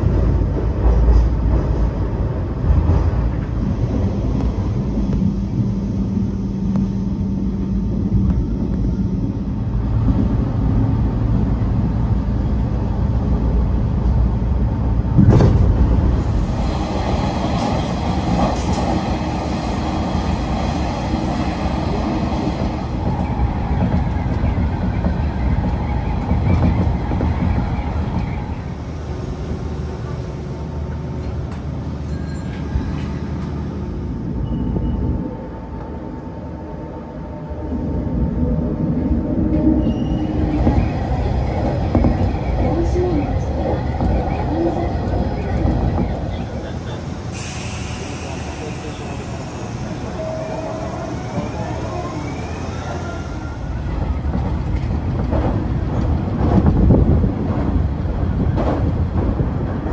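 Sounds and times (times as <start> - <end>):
rumble of wheels on rail: 0.0 - 59.9
train jolt: 13.1 - 35.2, 39.7 - 59.9.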